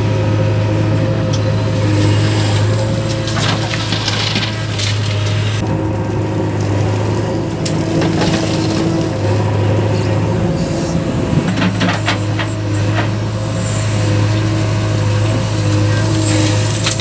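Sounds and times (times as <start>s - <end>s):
heavy diesel engine running: 0.0s - 17.0s
sharp knocks and clatters: 11.4s - 13.2s.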